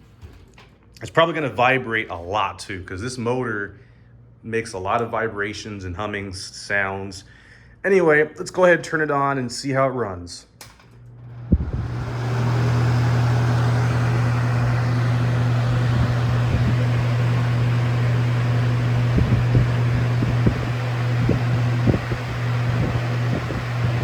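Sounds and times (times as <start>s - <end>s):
fan motor hum: 10.6s - 24.0s.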